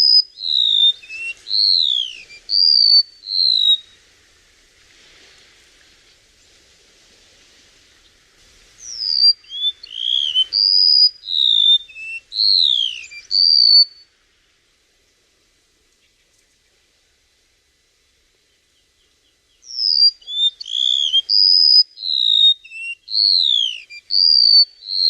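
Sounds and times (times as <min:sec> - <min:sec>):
songbird whistling: 0:00.0 - 0:04.0, 0:08.8 - 0:14.1, 0:19.5 - 0:25.0
faint hiss: 0:00.0 - 0:25.0.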